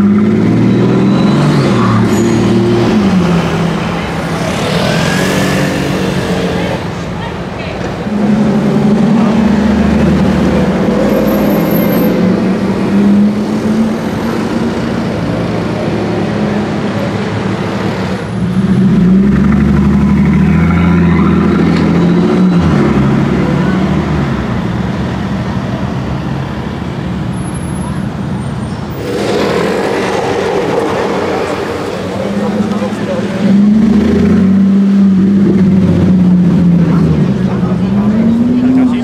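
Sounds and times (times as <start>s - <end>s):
car engine revving loudly: 0.0s - 6.8s, 28.9s - 39.0s.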